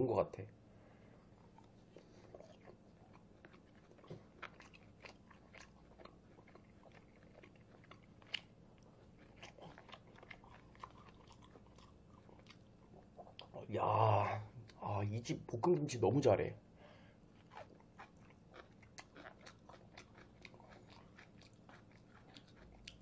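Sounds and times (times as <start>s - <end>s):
person chewing crunchy food: 1.3s - 13.6s, 17.2s - 23.0s.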